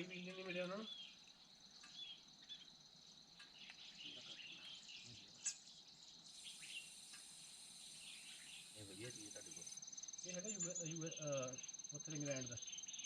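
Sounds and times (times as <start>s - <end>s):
crickets chirring: 0.0s - 13.0s
short bird chirps: 6.3s - 9.6s.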